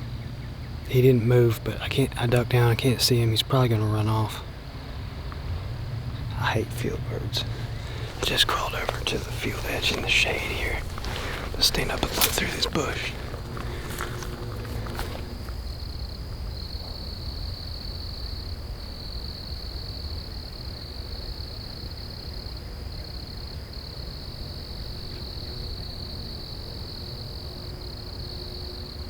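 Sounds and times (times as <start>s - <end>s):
insect trilling: 6.1s - 16.2s.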